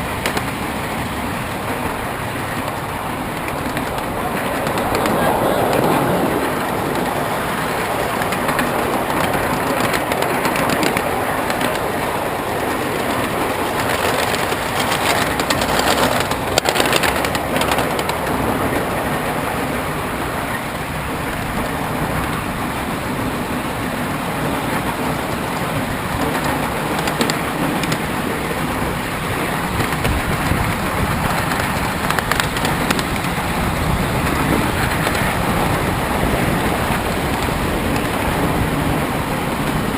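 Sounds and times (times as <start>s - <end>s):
train wheels rumbling on rail: 0.0s - 39.9s
clicks and knocks: 6.5s - 12.1s.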